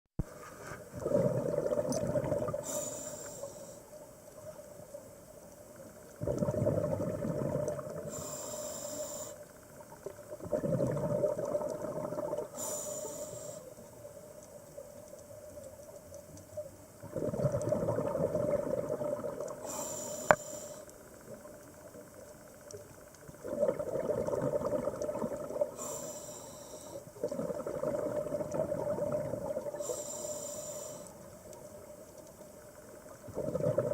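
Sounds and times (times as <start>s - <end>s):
exhaled bubbles rushing: 1.0s - 2.6s, 6.2s - 8.1s, 10.4s - 12.6s, 17.0s - 19.5s, 23.4s - 25.8s, 27.2s - 29.8s, 33.3s - 33.9s
regulator inhalation hiss: 2.6s - 3.9s, 8.0s - 9.5s, 12.5s - 13.8s, 19.6s - 20.9s, 25.8s - 27.1s, 29.7s - 31.4s.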